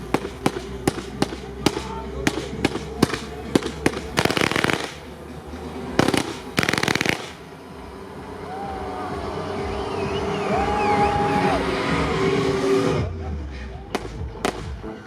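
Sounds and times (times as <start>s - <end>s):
firework bangs: 0.0s - 7.6s, 13.9s - 15.0s
rapid firework crackling: 0.0s - 8.0s, 13.9s - 15.0s.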